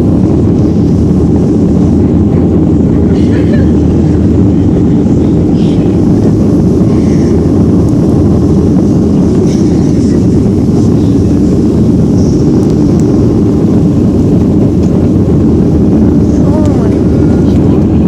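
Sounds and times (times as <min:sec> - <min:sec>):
airliner engines rumbling in cabin: 0:00.0 - 0:18.0.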